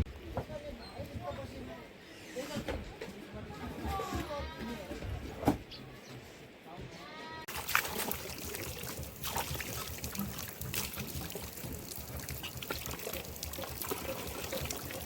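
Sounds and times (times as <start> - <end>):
water dripping: 7.5 - 15.0
water pouring and splashing: 7.5 - 15.0.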